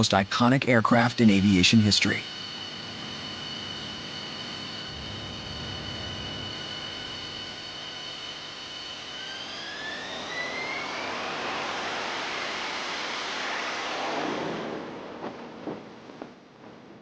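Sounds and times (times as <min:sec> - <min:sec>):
jet engine whine: 0:00.0 - 0:17.0
rushing jet noise: 0:00.0 - 0:17.0.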